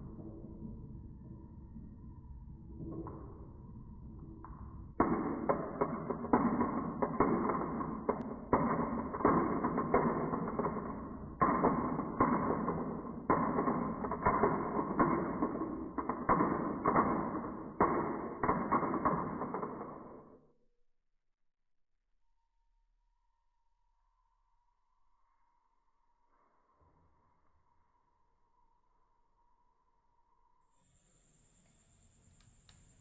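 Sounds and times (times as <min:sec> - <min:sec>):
marbles rolling down wooden run: 0:04.4 - 0:20.4.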